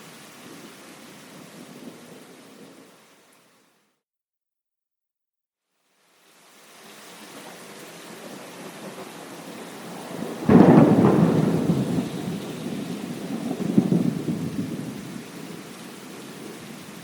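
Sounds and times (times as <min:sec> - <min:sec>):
steady rain: 0:00.0 - 0:04.0, 0:05.7 - 0:17.0
thunderclap rumbling: 0:08.6 - 0:15.6.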